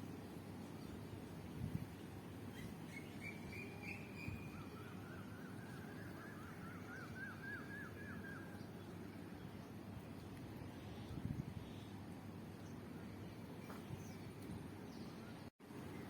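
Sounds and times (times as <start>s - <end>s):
steady low background noise: 0.0s - 16.0s
bird chirping: 2.5s - 9.8s.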